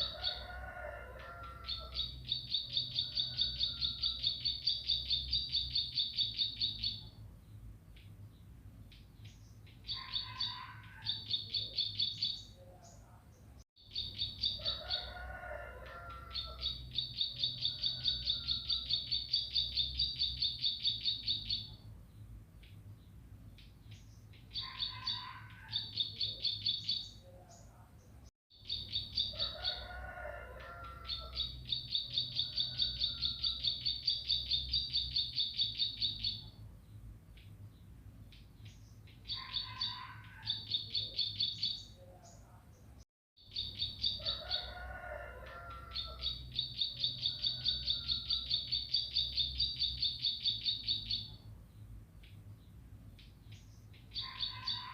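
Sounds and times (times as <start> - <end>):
bird singing rapid high chirps: 1.8 - 10.4, 13.8 - 14.6, 16.5 - 22.8, 28.6 - 29.4, 31.2 - 36.5, 43.4 - 44.3, 46.2 - 52.4.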